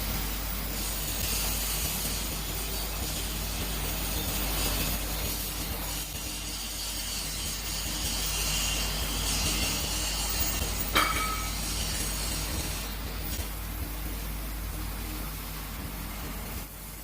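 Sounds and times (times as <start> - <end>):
torch hissing cutting steel: 0.0 - 14.4
sharp metallic knock: 10.9 - 11.6.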